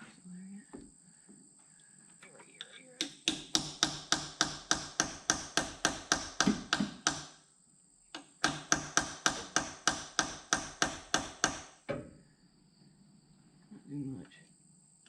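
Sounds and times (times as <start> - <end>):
hammer striking chisel: 3.0 - 7.4, 8.2 - 11.8.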